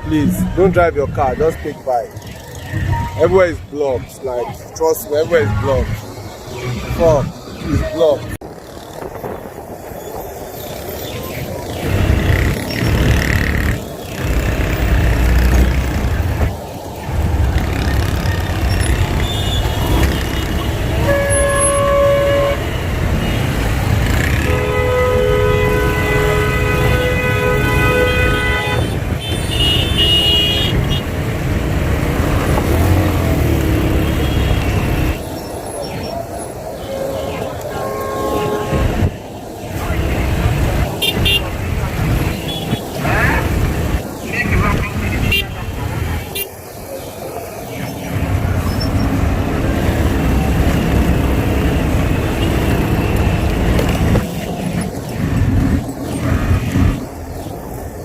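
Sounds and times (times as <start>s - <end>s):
road noise: 0.0s - 58.0s
low rumble of engines: 4.5s - 58.0s
vehicle horns: 17.8s - 31.2s, 32.9s - 35.3s, 36.7s - 43.5s, 45.1s - 46.7s, 49.7s - 54.3s.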